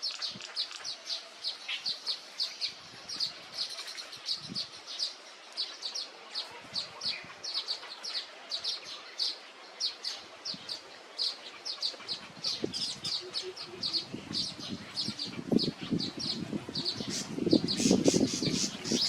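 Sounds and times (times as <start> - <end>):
faint background hiss: 0.0 - 19.0
small songbird chirping: 0.0 - 19.0.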